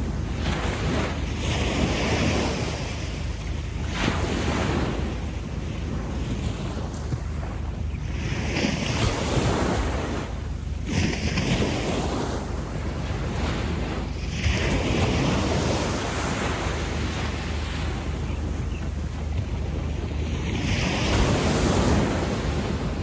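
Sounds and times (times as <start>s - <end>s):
waves washing up a beach: 0.0s - 23.0s
wind on microphone: 0.0s - 23.0s.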